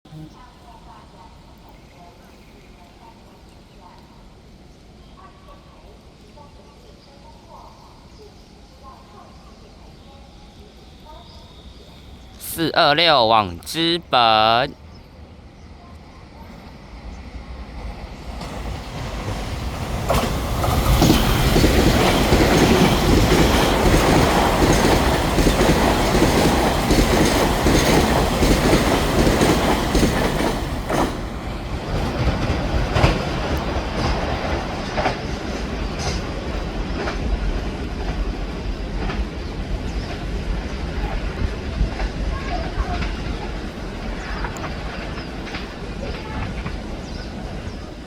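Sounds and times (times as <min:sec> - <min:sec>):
train wheels rushing on track: 0:12.1 - 0:14.7, 0:16.2 - 0:48.0
wheels clacking over rail joints: 0:18.4 - 0:38.3, 0:41.9 - 0:47.8.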